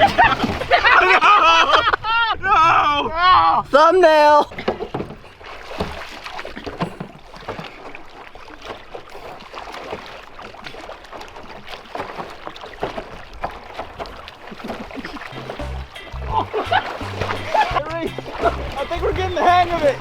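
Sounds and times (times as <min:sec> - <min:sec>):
water splashing around a boat: 0:00.0 - 0:20.0.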